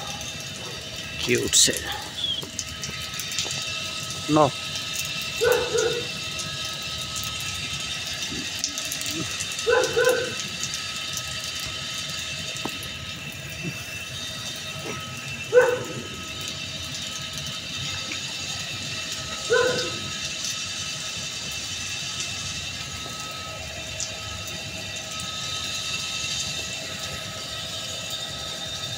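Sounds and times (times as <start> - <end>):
steady background hum: 0.0 - 28.9
puppies barking and yipping: 5.4 - 6.2, 8.7 - 10.5, 14.8 - 16.2, 19.4 - 20.1.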